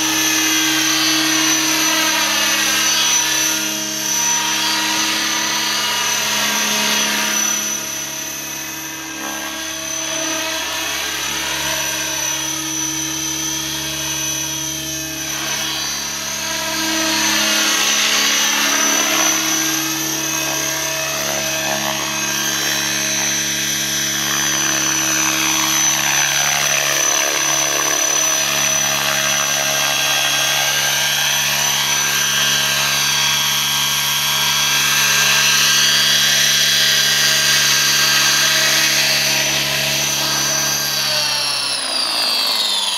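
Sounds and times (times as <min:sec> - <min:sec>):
model helicopter whine: 0:00.0 - 0:42.9.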